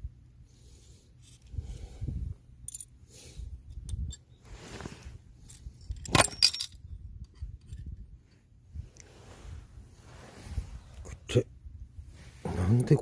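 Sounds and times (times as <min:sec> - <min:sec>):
light metal clinks: 0:05.4 - 0:08.0
metal parts bumping: 0:05.5 - 0:08.0.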